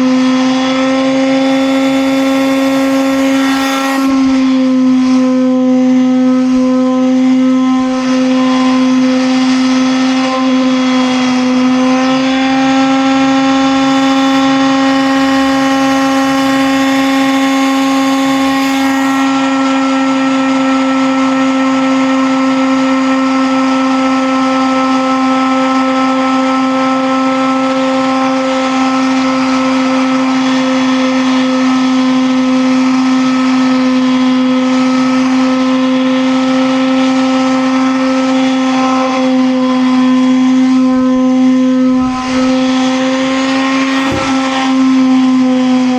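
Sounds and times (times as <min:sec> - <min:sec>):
motor humming: 0:00.0 - 0:20.6, 0:39.3 - 0:45.9.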